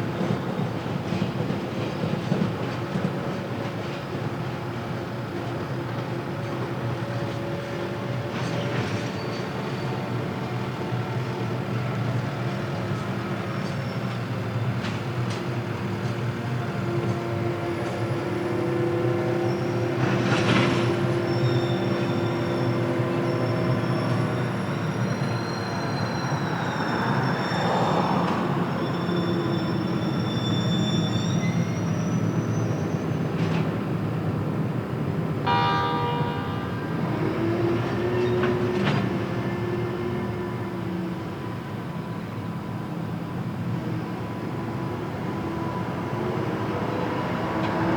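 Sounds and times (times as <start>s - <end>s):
freight train wagons rumbling: 0.0s - 47.9s
wheels squealing: 19.4s - 33.4s.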